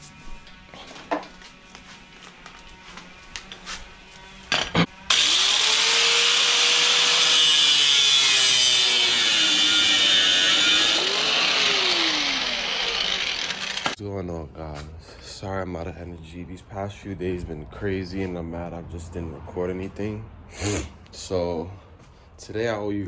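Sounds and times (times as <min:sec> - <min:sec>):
power tool motor running: 0:03.4 - 0:14.0.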